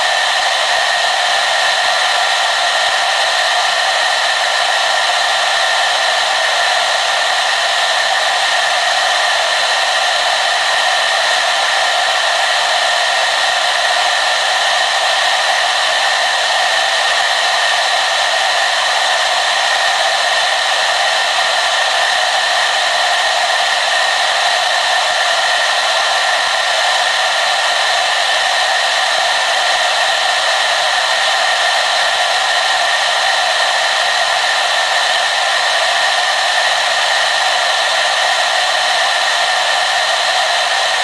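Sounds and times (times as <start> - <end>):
hair dryer running: 0.0 - 41.0.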